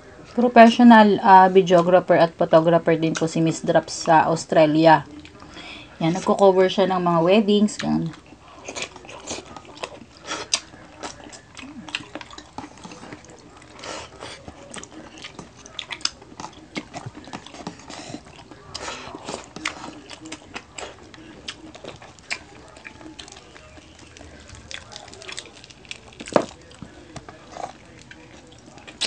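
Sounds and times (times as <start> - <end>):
wet chewing and lip smacking: 7.8 - 29.0.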